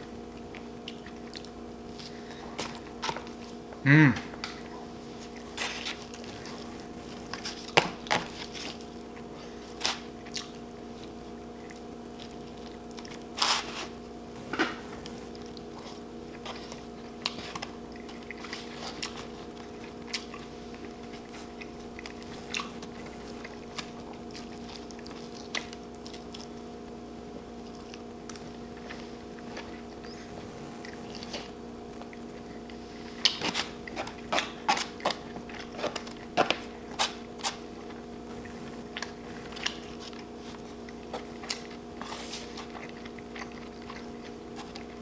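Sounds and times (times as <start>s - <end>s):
mouth biting and chewing food: 4.6s - 26.8s, 27.5s - 45.0s
low hum: 14.0s - 33.2s.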